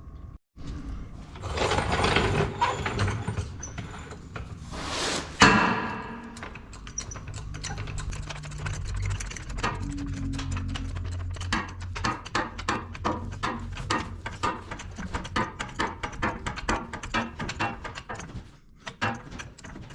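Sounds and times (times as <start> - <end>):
metal scraping and rattling: 1.0 - 19.9
rapid light ticking: 6.7 - 17.1.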